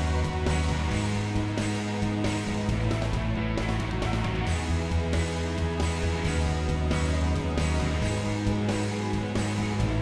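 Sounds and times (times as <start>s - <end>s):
background guitar music: 0.0s - 10.0s.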